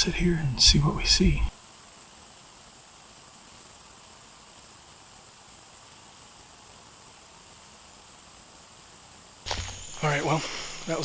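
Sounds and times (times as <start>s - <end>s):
faint steady hiss: 0.0s - 11.0s
thin high whine: 9.5s - 11.0s.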